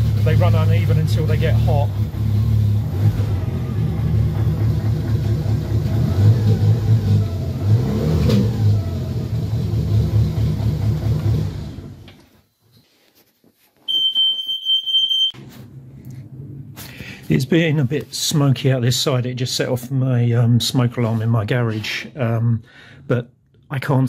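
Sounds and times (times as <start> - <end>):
car engine idling unevenly: 0.0 - 7.7
smoke alarm beep: 13.9 - 15.4.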